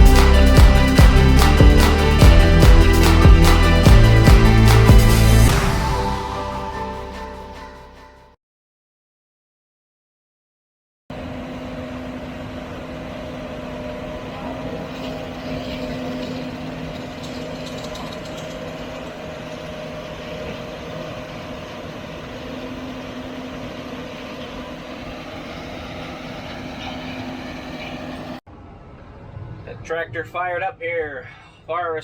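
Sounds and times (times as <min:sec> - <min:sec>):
machine engine humming: 0:11.2 - 0:29.8.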